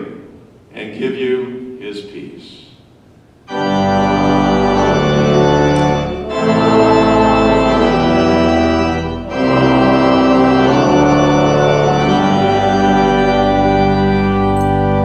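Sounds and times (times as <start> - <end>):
church organ chords: 3.5 - 15.0.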